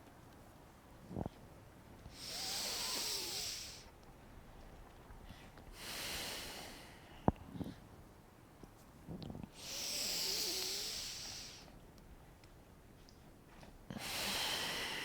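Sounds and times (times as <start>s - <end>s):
person breathing deeply: 2.2s - 3.9s, 14.0s - 15.0s.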